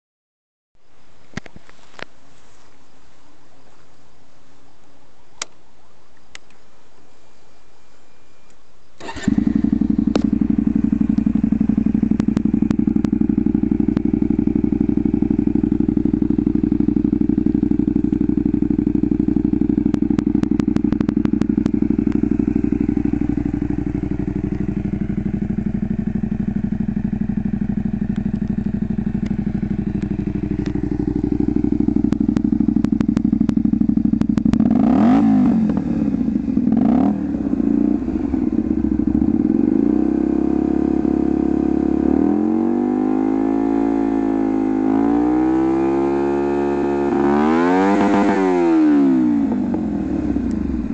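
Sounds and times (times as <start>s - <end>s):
motorcycle engine idling and revving: 9.0s - 50.9s.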